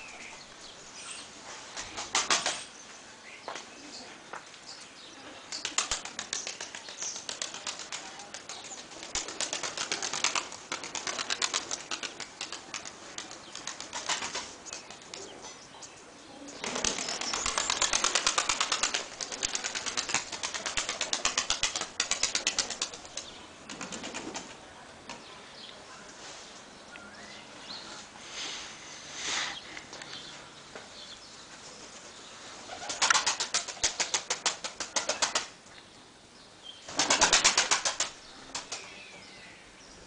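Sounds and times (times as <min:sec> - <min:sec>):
pigeons flapping wings: 0:01.8 - 0:02.6, 0:05.6 - 0:15.3, 0:16.6 - 0:24.6, 0:32.7 - 0:35.6, 0:36.9 - 0:38.9.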